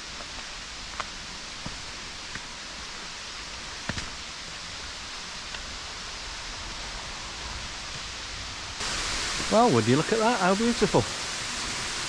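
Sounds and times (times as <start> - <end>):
waterfall rushing: 8.8 - 12.0.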